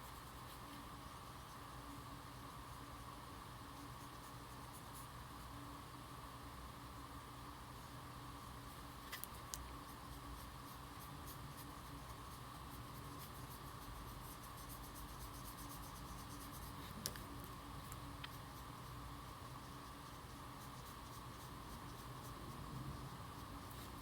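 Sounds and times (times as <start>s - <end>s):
low background hum: 0.0s - 24.0s
colouring tool scratching on card: 9.1s - 17.3s, 17.9s - 24.0s.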